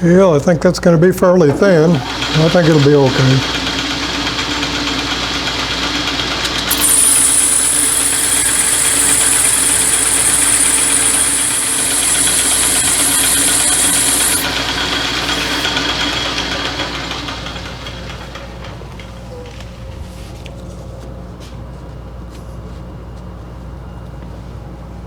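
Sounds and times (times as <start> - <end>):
lathe motor hum: 6.6 - 17.0
high hiss of boring tool: 6.7 - 15.9.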